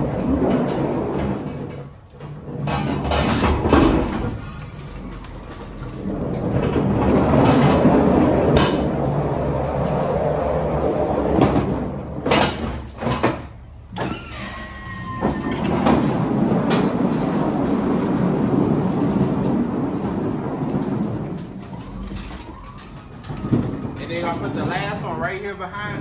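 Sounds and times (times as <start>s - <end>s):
pallet jack rumbling and rattling: 0.0s - 26.0s
brief squeak: 14.0s - 15.8s.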